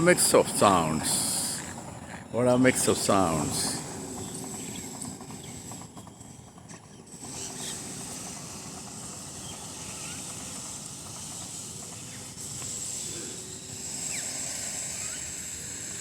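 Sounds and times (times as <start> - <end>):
distant traffic rumble: 0.0 - 16.0.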